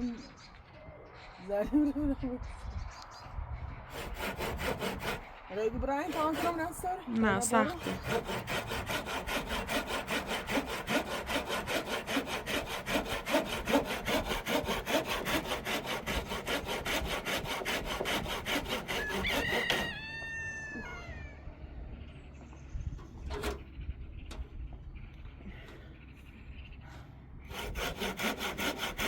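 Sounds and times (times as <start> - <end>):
hand saw cutting wood: 3.9 - 20.0, 27.5 - 29.0
rooster crowing: 18.9 - 21.6.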